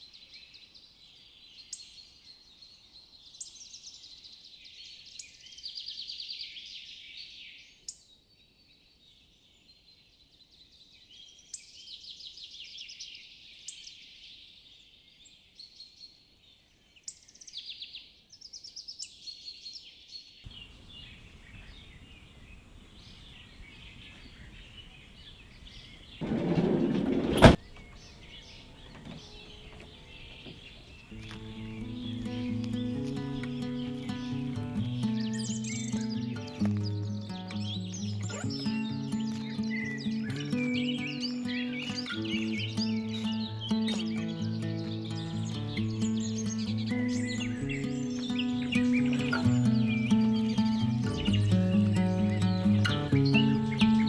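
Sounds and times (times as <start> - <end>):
small birds chirping and trilling: 0.0 - 54.0
outdoor background noise: 13.3 - 54.0.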